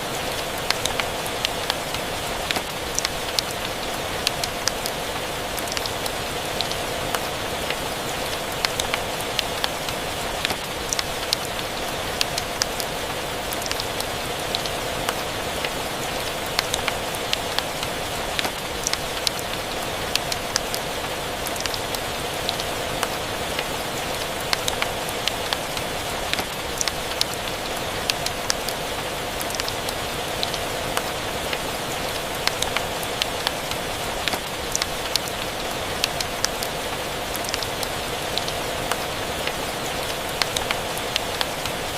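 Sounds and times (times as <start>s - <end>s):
rain hissing: 0.0s - 41.9s.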